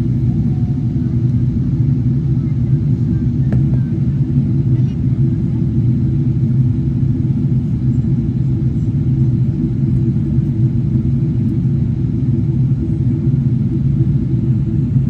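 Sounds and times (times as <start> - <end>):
airliner low rumble: 0.0 - 15.0.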